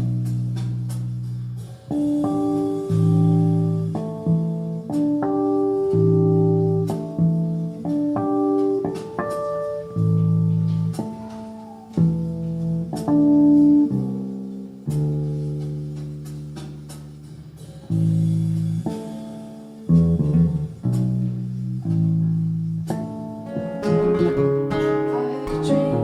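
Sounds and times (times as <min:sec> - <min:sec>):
low bass notes: 0:00.0 - 0:26.0
guitar plucking chords: 0:01.9 - 0:15.8, 0:18.8 - 0:26.0.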